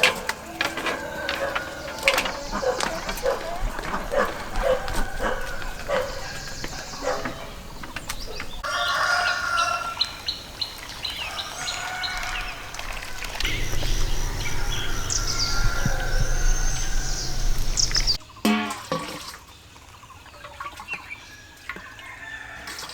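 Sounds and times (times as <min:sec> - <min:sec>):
small birds chirping: 0:00.0 - 0:18.2
low steady hum: 0:12.6 - 0:18.2.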